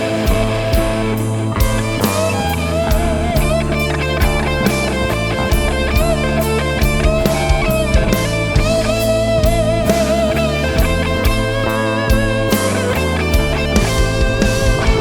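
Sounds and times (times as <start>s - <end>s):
bass guitar: 0.0s - 15.0s
lead electric guitar with vibrato: 0.0s - 15.0s
steady drum beat: 0.0s - 15.0s.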